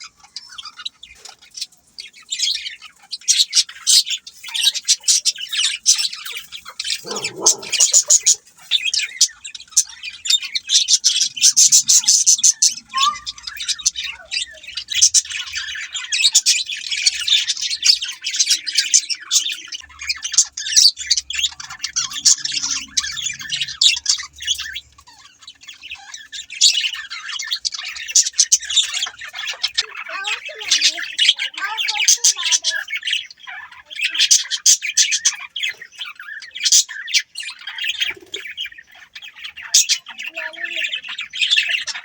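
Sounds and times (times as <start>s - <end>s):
budgerigars chirping and squawking: 0.0s - 42.0s.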